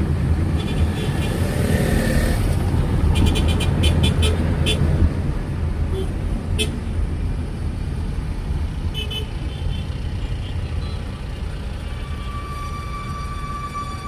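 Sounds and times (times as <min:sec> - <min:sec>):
city road traffic rumble: 0:00.0 - 0:14.0
steady high-pitched tone: 0:10.8 - 0:14.0.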